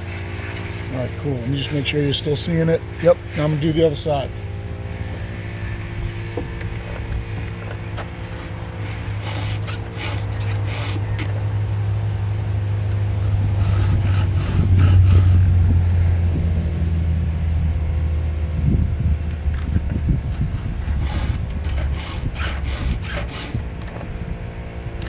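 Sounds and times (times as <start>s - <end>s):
low mechanical hum: 0.0s - 25.0s
file rasping on chainsaw chain: 7.5s - 11.4s, 13.4s - 15.6s, 20.3s - 23.6s.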